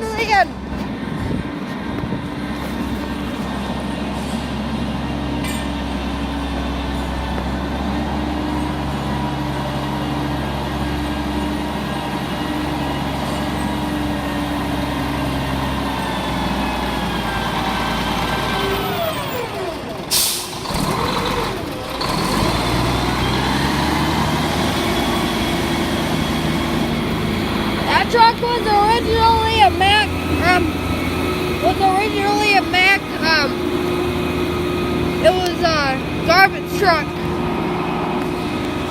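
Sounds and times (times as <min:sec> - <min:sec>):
diesel truck engine running: 0:00.0 - 0:38.9
air brake hiss: 0:20.1 - 0:20.6.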